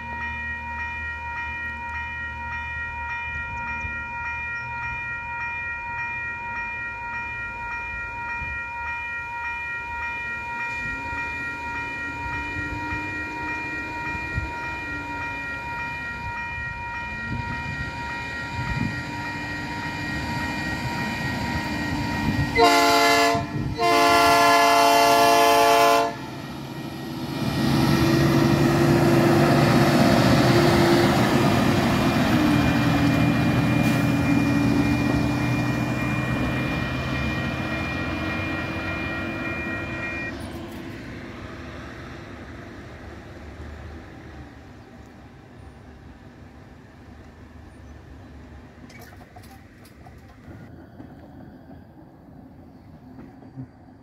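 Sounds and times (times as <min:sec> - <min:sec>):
train passing loudly: 0:00.0 - 0:54.0
locomotive air horn: 0:11.4 - 0:16.4, 0:17.1 - 0:26.3, 0:33.0 - 0:40.3.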